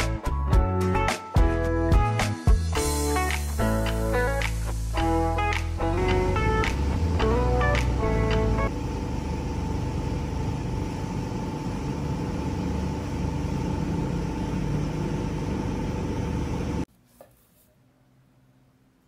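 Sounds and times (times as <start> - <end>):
machine whirring and humming: 6.8 - 16.9.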